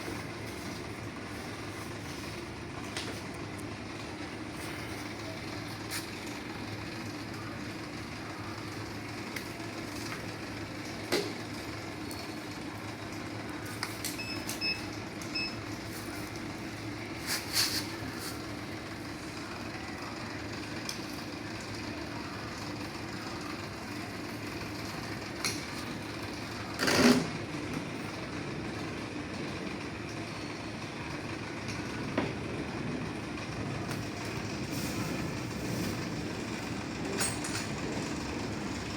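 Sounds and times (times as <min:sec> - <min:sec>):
machinery hum: 0:12.6 - 0:38.9.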